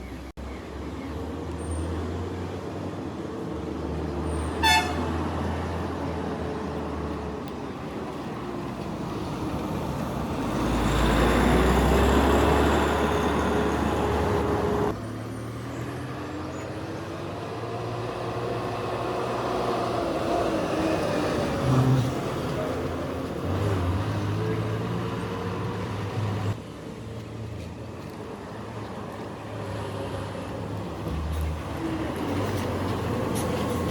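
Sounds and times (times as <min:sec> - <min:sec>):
nearer engine: 0:00.0 - 0:33.9
heavy diesel engines running: 0:01.9 - 0:15.2, 0:16.0 - 0:27.2
horn toot: 0:04.6 - 0:05.2.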